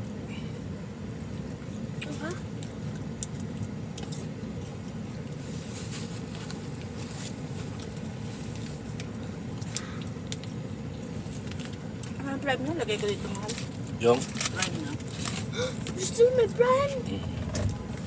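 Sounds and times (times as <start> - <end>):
car cabin hum: 10.2 - 18.0.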